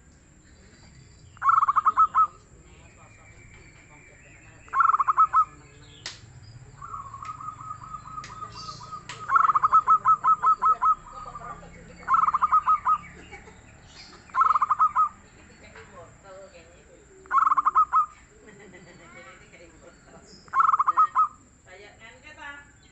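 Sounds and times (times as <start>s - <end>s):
dove cooing: 1.4s - 2.9s, 4.6s - 5.8s, 6.6s - 15.3s, 17.3s - 18.4s, 20.5s - 21.6s.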